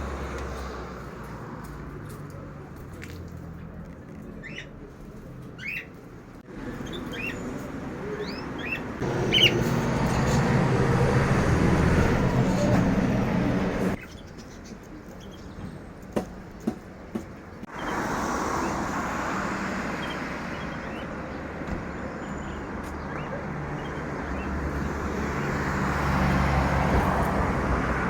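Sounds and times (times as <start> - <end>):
small birds chirping: 6.6 - 10.5, 13.9 - 15.9.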